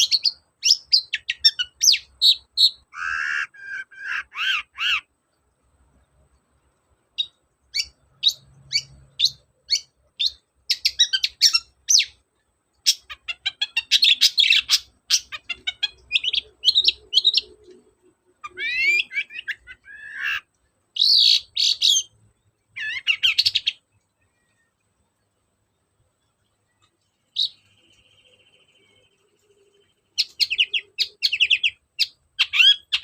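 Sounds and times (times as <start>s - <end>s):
shrike singing: 7.2s - 24.8s, 26.7s - 33.0s.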